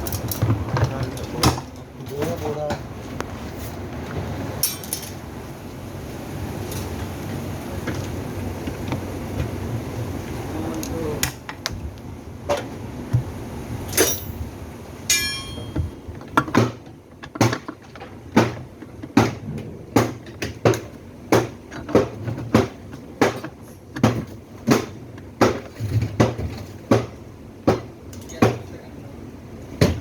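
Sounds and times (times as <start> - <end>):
hammer blows: 15.1 - 16.0.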